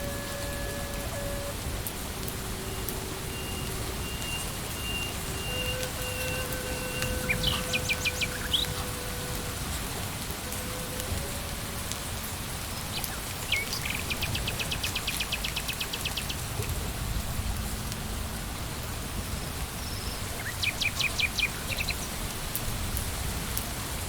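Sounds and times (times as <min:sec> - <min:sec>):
bird chirping: 0:00.0 - 0:01.6, 0:02.2 - 0:16.5, 0:19.8 - 0:22.2
long held steady tones: 0:00.0 - 0:16.4
rain hissing: 0:00.0 - 0:24.0
raindrops tapping: 0:00.0 - 0:24.0.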